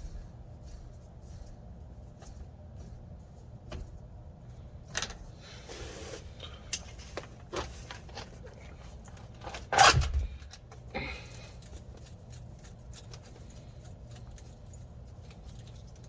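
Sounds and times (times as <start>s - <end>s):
metal parts clinking: 6.7s - 16.0s.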